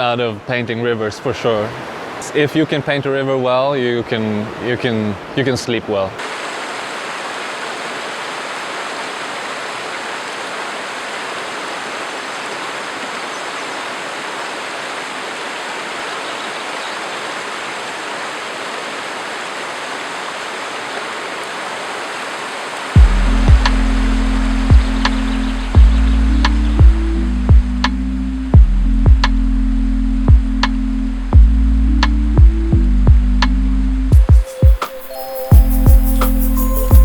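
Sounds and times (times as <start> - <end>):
river rushing over rocks: 1.1 - 3.2, 3.8 - 24.8
music with low beat: 23.0 - 37.0.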